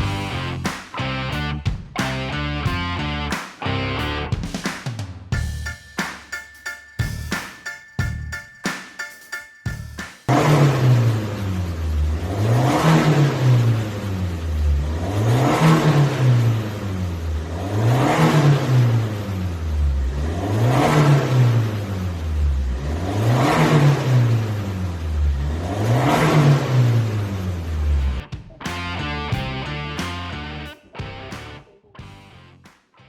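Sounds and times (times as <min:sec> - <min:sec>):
car engine revving: 0:10.3 - 0:28.2.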